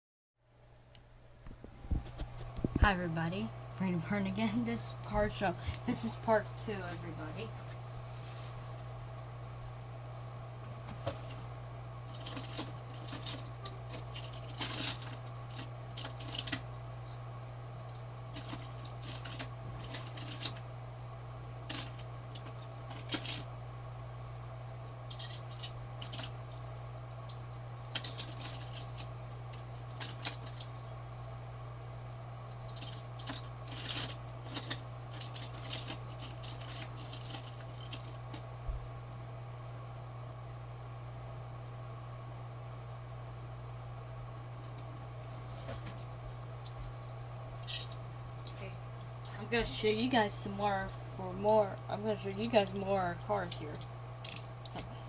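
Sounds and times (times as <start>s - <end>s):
steady low hum: 0.4s - 55.0s
light clicking and rattling: 12.1s - 17.2s, 17.9s - 20.6s, 25.1s - 31.0s, 32.5s - 38.5s.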